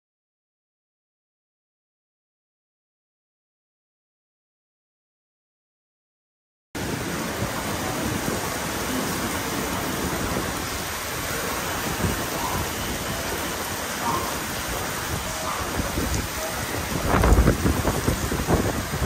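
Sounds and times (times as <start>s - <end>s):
heavy rain hissing: 6.8s - 19.0s.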